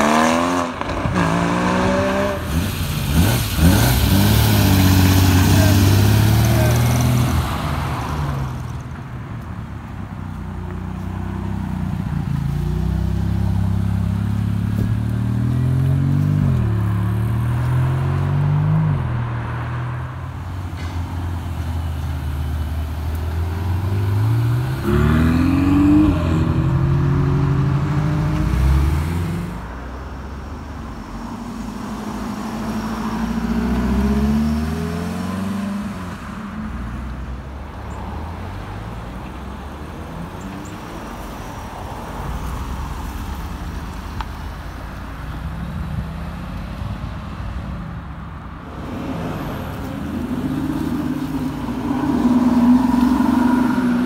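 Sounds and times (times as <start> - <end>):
sports car engines revving: 0.0 - 8.8, 23.2 - 29.7, 48.5 - 54.0.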